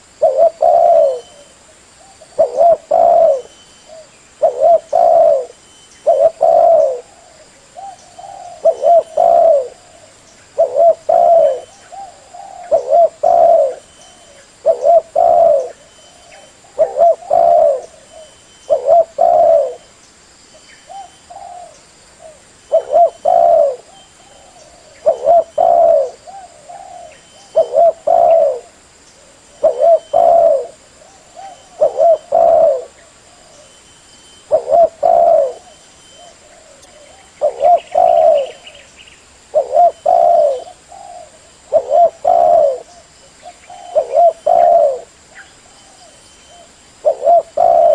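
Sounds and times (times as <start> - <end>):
dove cooing: 0.0 - 19.9, 20.9 - 33.8, 34.4 - 38.9, 39.5 - 47.9.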